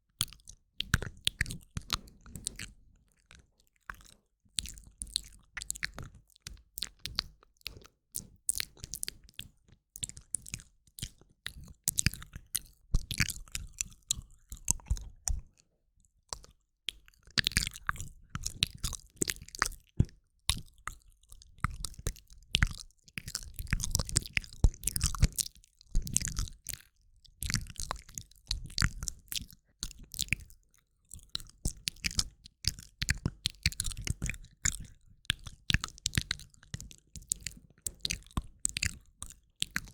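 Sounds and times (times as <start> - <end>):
wet mouth clicks and smacks: 0.2 - 15.6, 16.3 - 26.8, 27.4 - 39.9.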